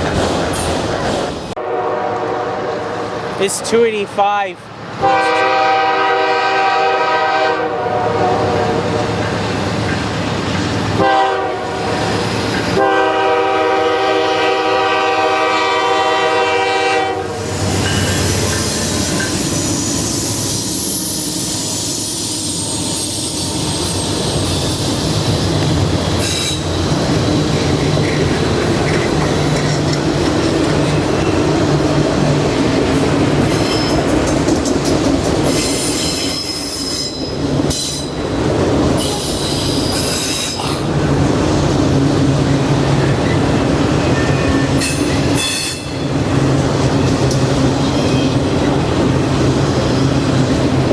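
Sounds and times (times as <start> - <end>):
train wheels on rails: 0.0 - 50.9
locomotive air horn: 1.6 - 3.4, 5.0 - 9.2, 11.0 - 12.0, 12.7 - 17.5
high wheel squeal: 17.4 - 29.8, 35.5 - 38.2.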